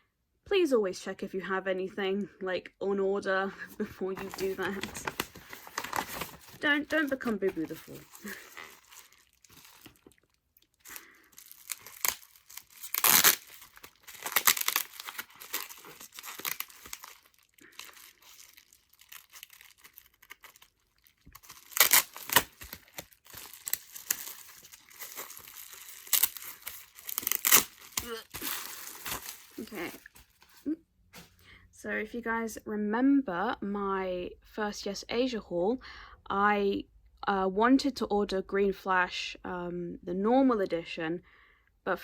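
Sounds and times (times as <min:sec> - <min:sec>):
packaging tearing and crinkling: 0:04.2 - 0:30.6.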